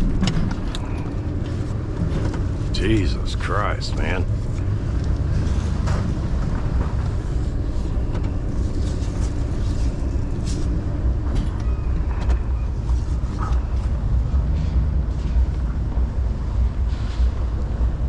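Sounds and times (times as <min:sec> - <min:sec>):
knocks and rattles: 0:00.0 - 0:14.0
truck engine rumbling: 0:00.0 - 0:18.0.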